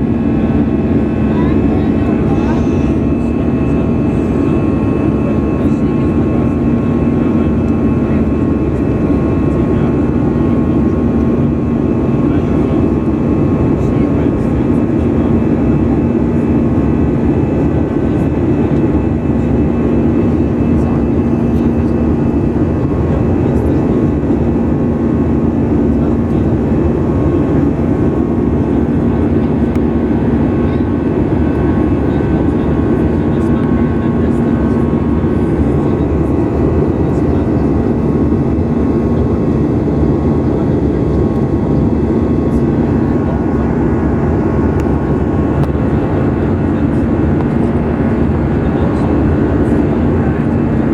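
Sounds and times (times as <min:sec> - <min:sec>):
constant low hum: 0:00.0 - 0:50.9
jet engine and airflow rush: 0:00.0 - 0:50.9.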